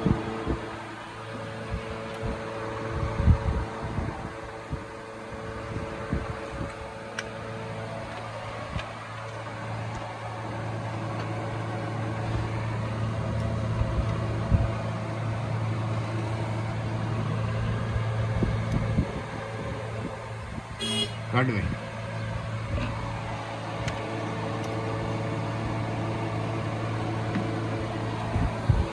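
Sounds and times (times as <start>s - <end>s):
car engine running: 0.0s - 28.9s
higher steady tone: 20.8s - 21.4s.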